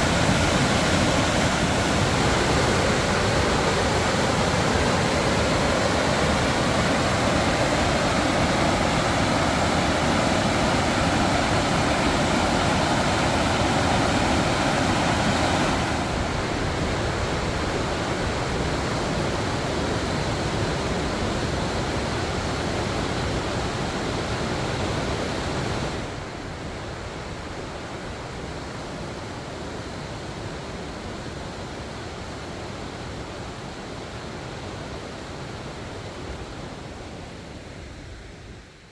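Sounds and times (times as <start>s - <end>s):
river rapids rushing: 0.0s - 37.9s.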